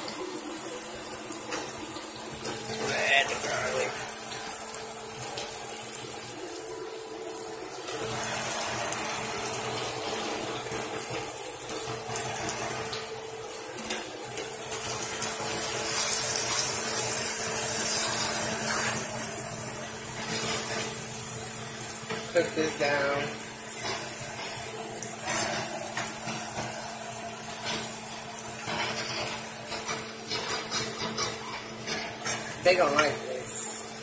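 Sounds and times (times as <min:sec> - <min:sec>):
food sizzling in a frying pan: 0:00.0 - 0:34.0.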